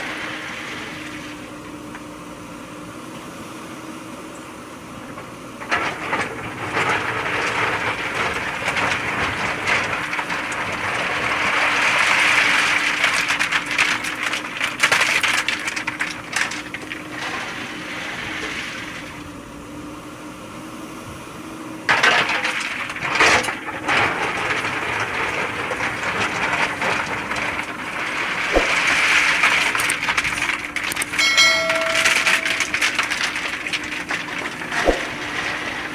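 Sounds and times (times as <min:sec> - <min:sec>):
soil and stones clattering: 0:05.1 - 0:19.5, 0:21.9 - 0:35.9.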